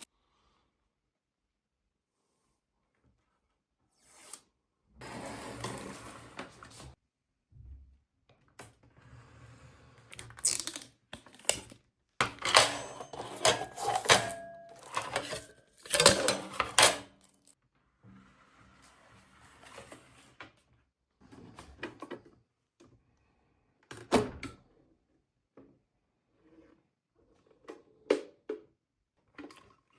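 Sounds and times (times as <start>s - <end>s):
espresso machine parts handled: 10.4s - 17.4s.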